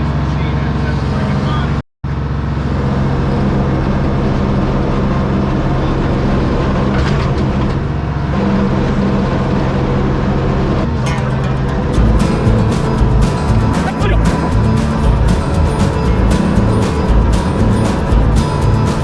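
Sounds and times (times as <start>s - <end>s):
diesel engine running: 7.5s - 19.0s.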